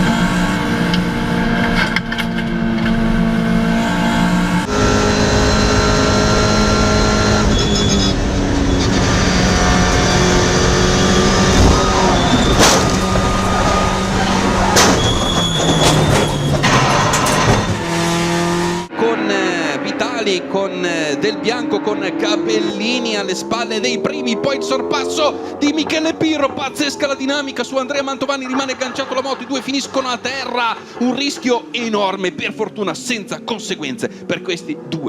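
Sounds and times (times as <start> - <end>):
race car engines: 0.0 - 35.0
sharp bangs: 11.3 - 18.9.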